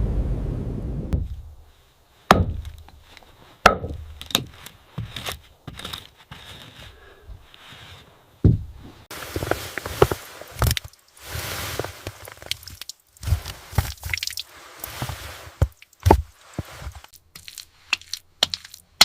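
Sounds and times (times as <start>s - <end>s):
low rushing noise: 0.0s - 1.2s
wood being struck: 2.3s - 2.9s, 3.6s - 4.5s.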